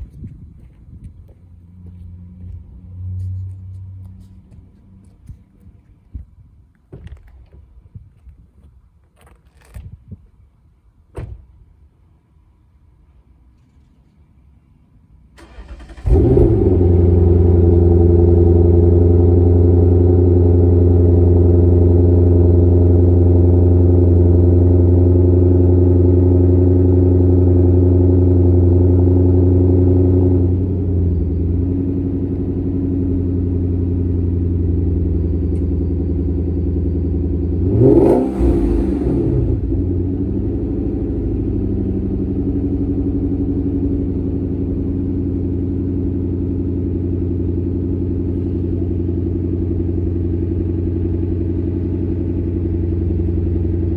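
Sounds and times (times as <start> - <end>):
car engine starting and idling: 15.3 - 53.9
engine revving: 15.4 - 22.7, 36.2 - 43.1.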